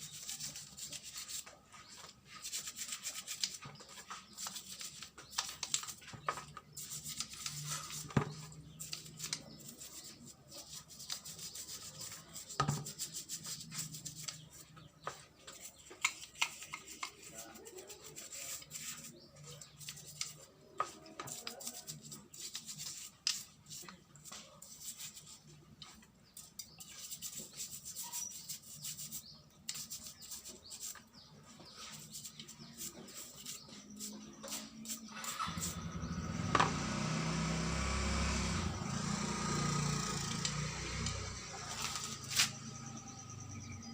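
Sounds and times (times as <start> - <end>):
scrubbing metal parts: 0.0 - 36.2.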